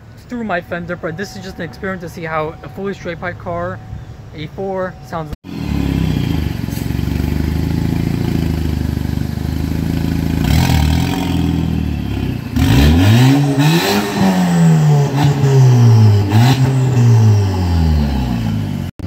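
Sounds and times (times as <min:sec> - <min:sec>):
car engine idling and revving: 0:04.9 - 0:19.0.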